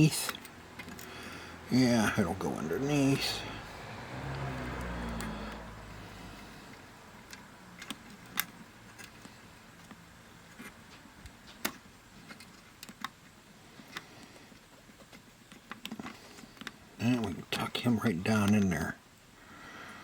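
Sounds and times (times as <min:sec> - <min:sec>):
small tools clicking and tapping: 0:00.2 - 0:01.1.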